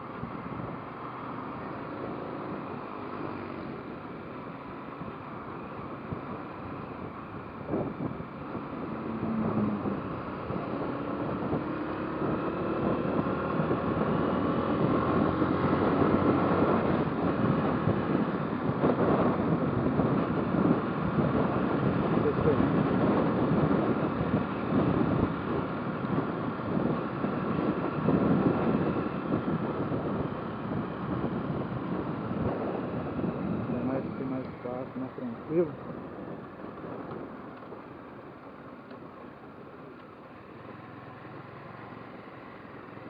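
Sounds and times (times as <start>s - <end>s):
wind on microphone: 5.9s - 37.4s.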